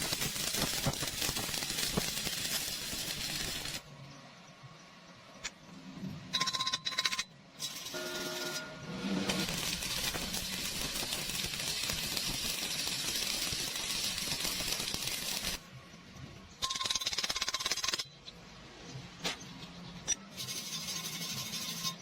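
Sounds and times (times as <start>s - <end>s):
welding arc crackling: 0.0s - 3.8s, 9.2s - 15.6s.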